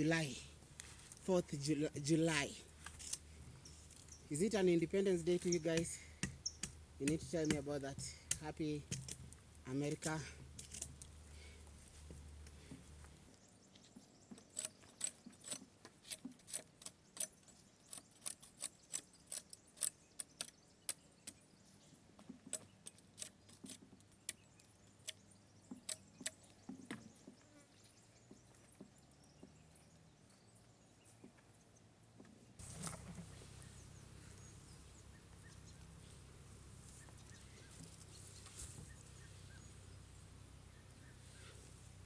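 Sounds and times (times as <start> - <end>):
sharp clicks: 14.3 - 21.4.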